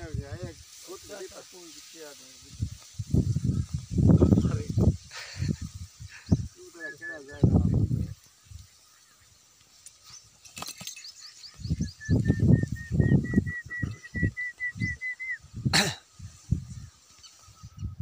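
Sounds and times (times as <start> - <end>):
burst of hissing noise: 0.0 - 8.9
bird calling rising notes: 11.2 - 15.5.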